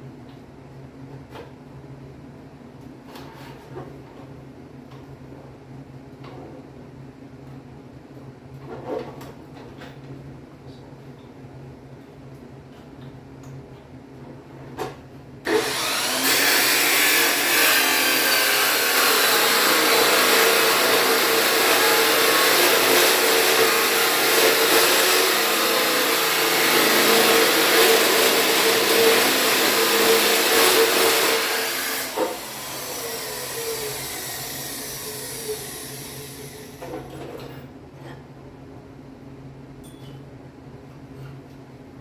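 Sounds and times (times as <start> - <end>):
electric grinder on steel: 15.5 - 36.8.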